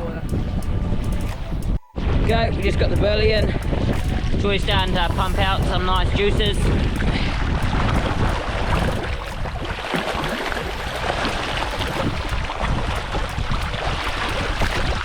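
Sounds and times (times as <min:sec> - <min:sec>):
wind buffeting microphone: 0:00.0 - 0:15.0
sea waves washing: 0:01.1 - 0:15.0.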